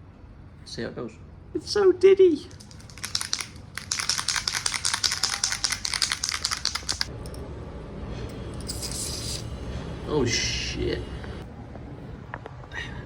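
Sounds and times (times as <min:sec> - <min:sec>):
spray can ball rattling: 0:02.5 - 0:07.1, 0:08.7 - 0:09.4.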